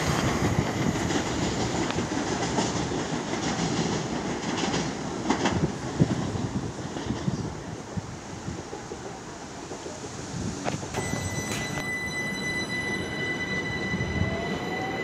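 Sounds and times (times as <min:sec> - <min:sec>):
electric train moving away: 0:00.0 - 0:15.0.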